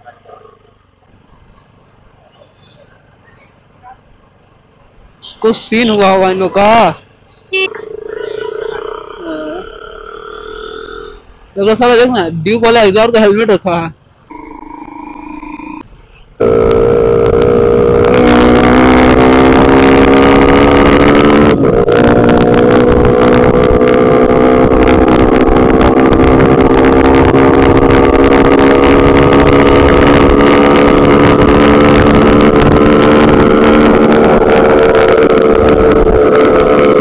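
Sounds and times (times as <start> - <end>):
motorcycle engine at high revs: 16.4 - 37.0.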